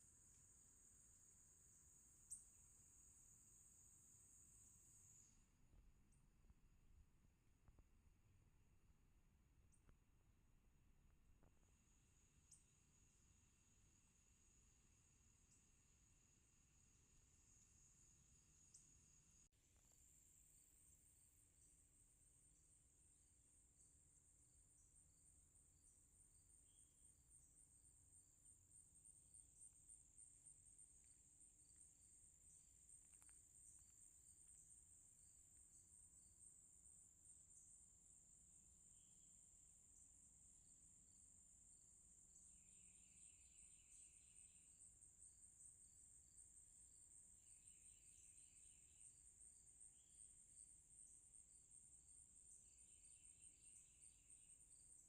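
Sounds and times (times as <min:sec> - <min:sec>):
pulsed buzzy insect calls: 0:00.0 - 0:05.4, 0:24.7 - 0:55.0.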